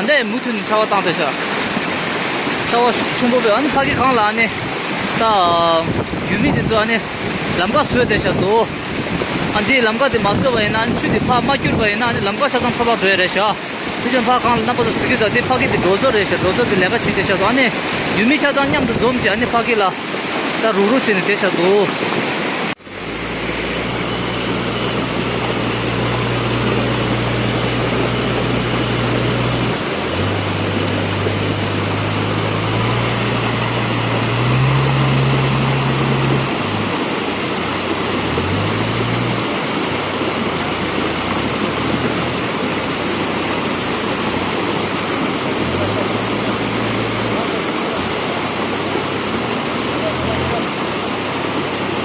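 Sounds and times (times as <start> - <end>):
river floodwater roaring: 0.0 - 52.0
low engine hum: 22.8 - 52.0.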